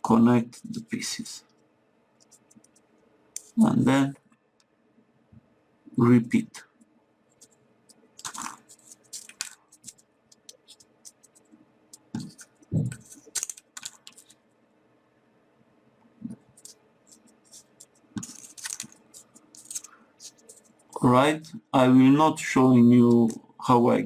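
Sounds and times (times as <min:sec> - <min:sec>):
paper rustling and clicking: 0:08.2 - 0:14.4, 0:16.5 - 0:20.7.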